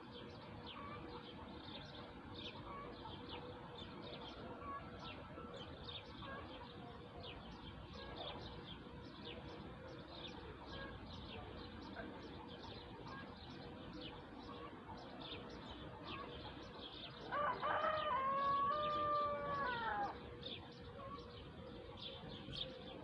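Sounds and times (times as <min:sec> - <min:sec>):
small birds chirping: 0:00.0 - 0:23.0
rooster crowing: 0:17.3 - 0:20.2.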